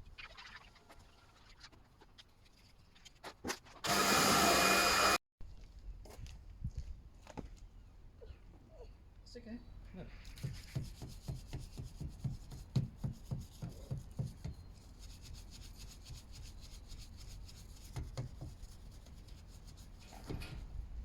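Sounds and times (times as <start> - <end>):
brush scrubbing: 10.2 - 20.3.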